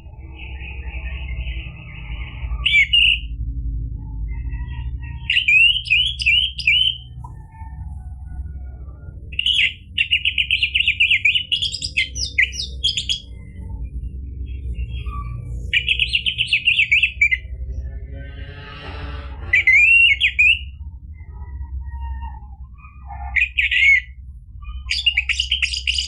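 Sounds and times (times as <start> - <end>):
low steady hum: 0.0 - 26.0
thrush singing: 5.3 - 14.0.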